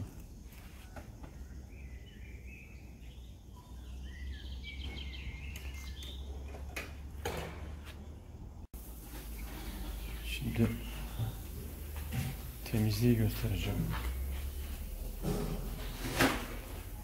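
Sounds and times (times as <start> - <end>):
small birds chirping and singing: 0.0 - 7.1, 9.1 - 16.0
low outdoor rumble: 6.2 - 17.0.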